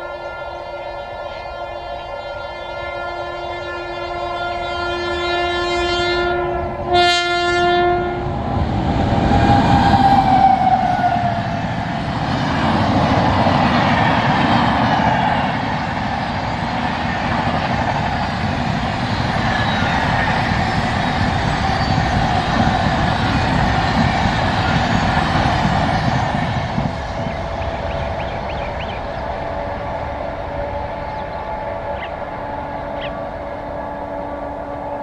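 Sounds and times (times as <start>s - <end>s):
train horn blasts: 0.0s - 8.5s, 9.2s - 11.6s, 26.7s - 35.0s
train wheels rushing on rails: 0.0s - 35.0s.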